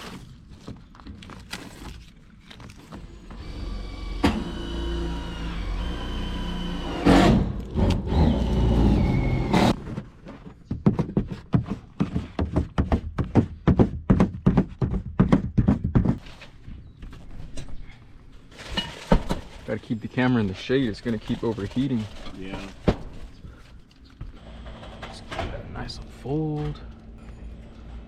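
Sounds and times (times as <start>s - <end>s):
rapid knocks: 10.7s - 16.2s.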